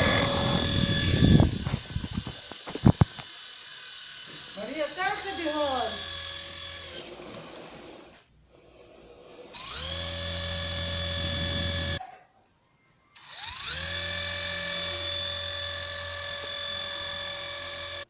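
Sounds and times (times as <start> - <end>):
small electric motor whirring: 0.0 - 8.3, 9.4 - 12.0, 13.2 - 18.0.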